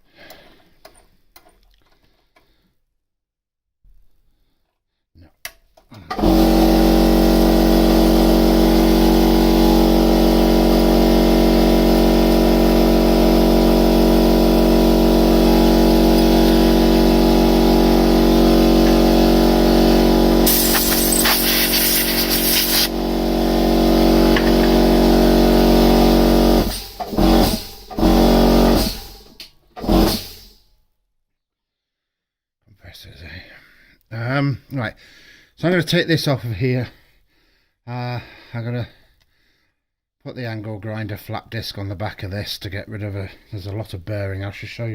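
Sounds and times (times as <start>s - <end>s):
milling machine whining: 6.1s - 27.2s
loud hiss: 20.4s - 23.0s.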